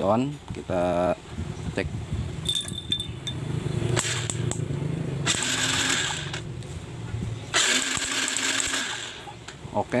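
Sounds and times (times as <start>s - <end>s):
engine cranking: 2.5s - 6.5s, 7.5s - 9.3s.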